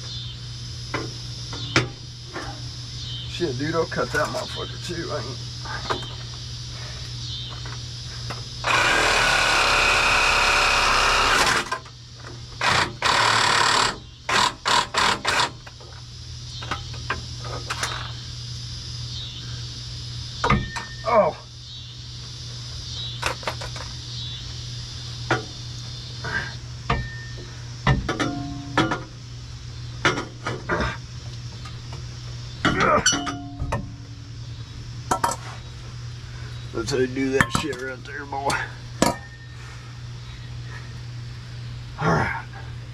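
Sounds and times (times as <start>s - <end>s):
steady low hum: 0.0s - 42.9s
power saw cutting steel pipe: 8.6s - 11.8s.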